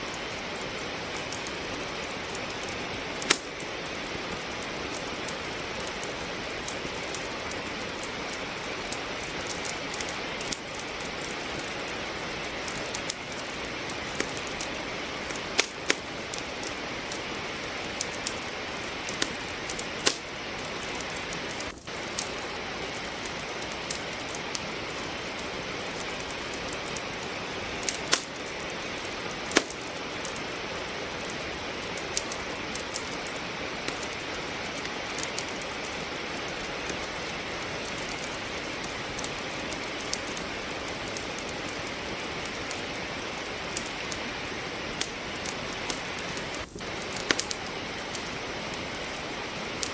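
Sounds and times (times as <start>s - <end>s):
steady rain hiss: 0.0s - 49.9s
wood fire crackling: 0.0s - 49.9s.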